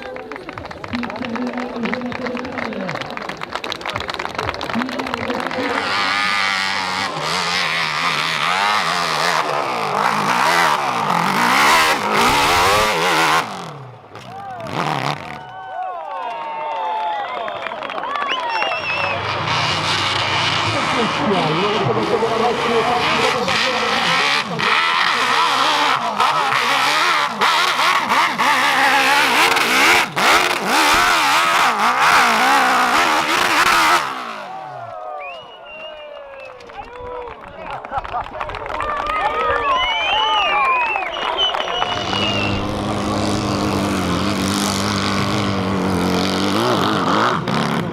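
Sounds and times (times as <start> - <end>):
dirt bike engine revving: 4.6 - 15.5, 18.5 - 34.9, 41.1 - 47.9.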